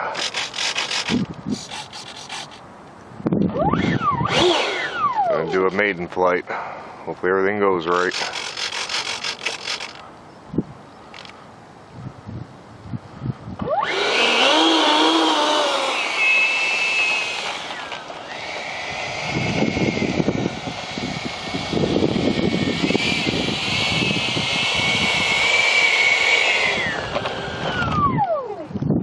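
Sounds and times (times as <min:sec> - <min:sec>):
electric ducted fan whine: 0:12.2 - 0:29.0.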